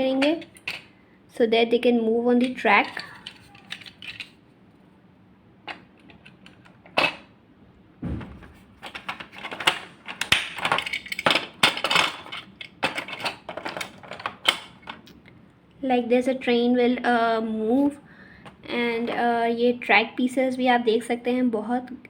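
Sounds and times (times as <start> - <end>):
plastic toy train cars clicking: 2.4 - 4.4.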